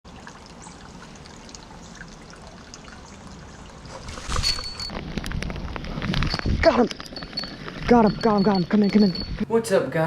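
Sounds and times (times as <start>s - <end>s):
rain pattering and trickling: 0.1s - 4.3s.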